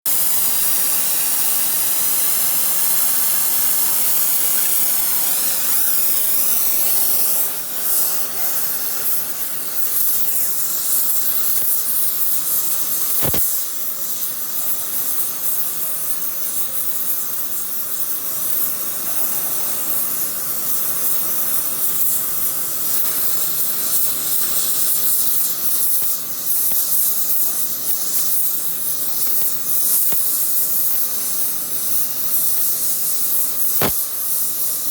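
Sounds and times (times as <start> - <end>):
welding arc hissing: 0.1 - 34.9
sharp click: 13.2 - 13.5, 33.7 - 34.1.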